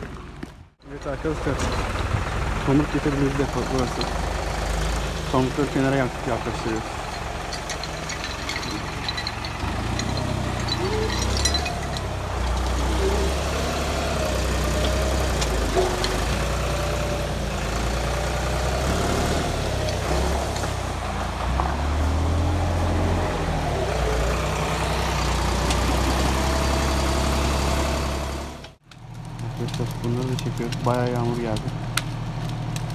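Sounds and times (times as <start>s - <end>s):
tractor engine under load: 0.0s - 32.9s
light clanks: 6.6s - 13.4s.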